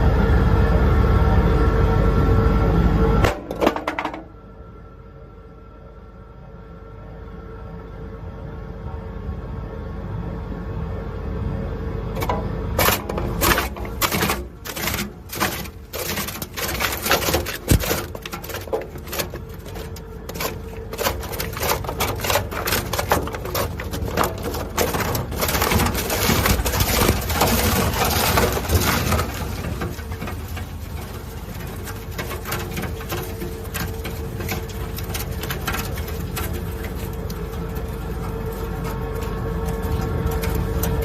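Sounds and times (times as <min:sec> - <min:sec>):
shredder machine hum: 0:11.2 - 0:41.0
wood cracking and snapping: 0:12.2 - 0:41.0.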